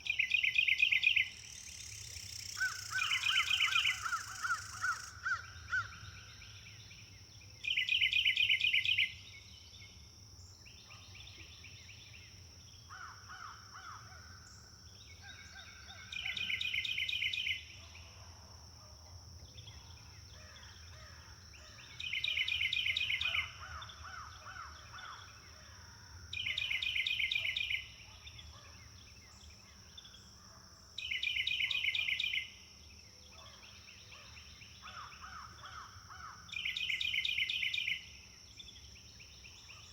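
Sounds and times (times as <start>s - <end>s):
other birds calling quietly: 0.0s - 9.5s.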